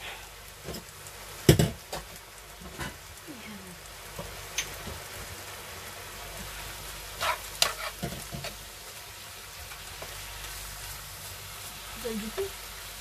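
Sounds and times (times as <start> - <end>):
beef sizzling in a pan: 0.0 - 13.0
utensil knocking and scraping pan: 7.2 - 8.6.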